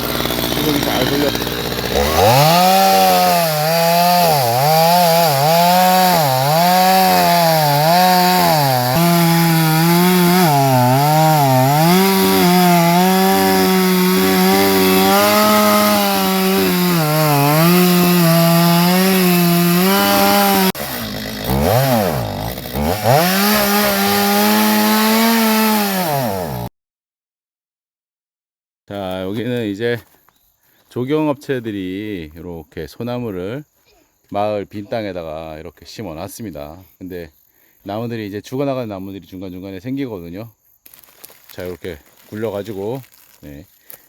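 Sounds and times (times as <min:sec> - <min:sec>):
chainsaw cutting wood: 0:00.0 - 0:26.7.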